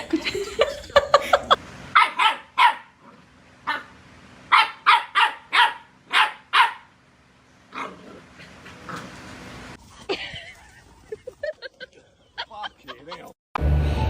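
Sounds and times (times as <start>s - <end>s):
dog barking: 2.0s - 3.0s, 3.7s - 3.9s, 4.5s - 6.9s.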